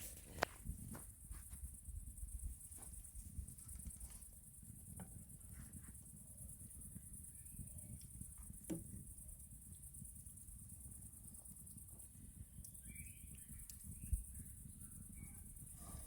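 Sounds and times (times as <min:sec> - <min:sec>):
crickets chirping: 0:00.0 - 0:16.0
faint clicks: 0:12.6 - 0:14.5.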